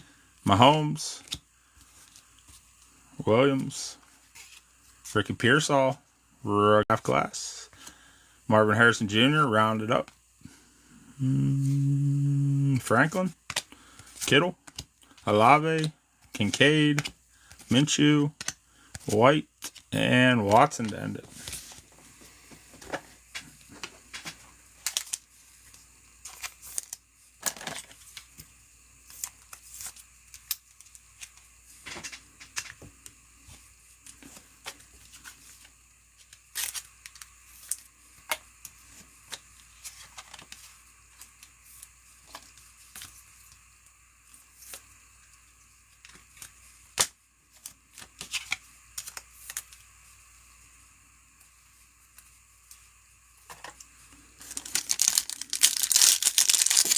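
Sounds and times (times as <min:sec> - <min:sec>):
cards clicking and rustling: 0:00.5 - 0:02.8, 0:13.4 - 0:21.8, 0:34.1 - 0:43.6, 0:46.0 - 0:49.9, 0:54.4 - 0:56.9.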